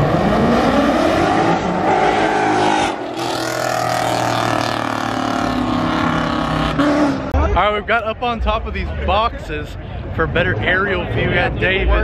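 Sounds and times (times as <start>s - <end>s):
car engines revving hard: 0.0s - 7.4s.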